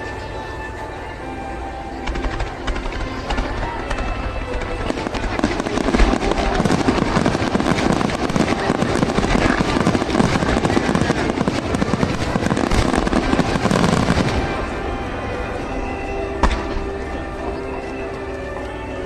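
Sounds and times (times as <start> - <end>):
fireworks bangs and crackling: 2.1 - 17.3.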